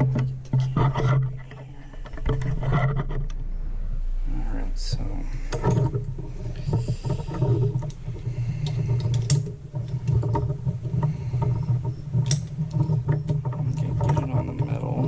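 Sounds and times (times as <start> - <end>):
steady low hum: 0.0 - 15.0
metal tools clicking and knocking: 11.6 - 14.3.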